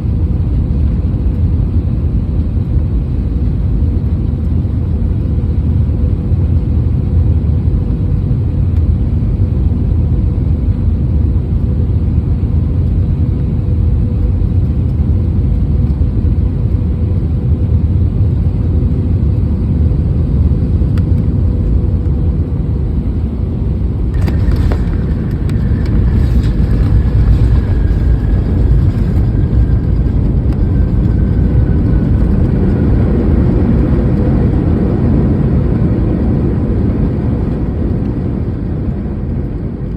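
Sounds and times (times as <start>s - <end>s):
airliner rumble and hum: 0.0s - 39.9s
faint falling whine: 20.9s - 35.3s
sudden rattle: 23.8s - 32.1s.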